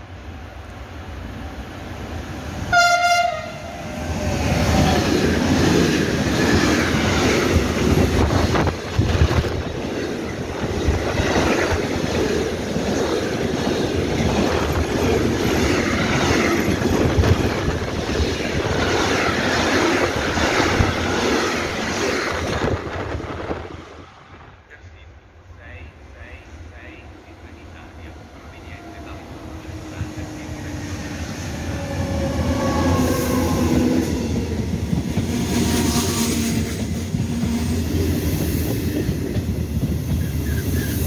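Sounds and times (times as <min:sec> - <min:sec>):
locomotive horn blast: 0:02.7 - 0:03.8.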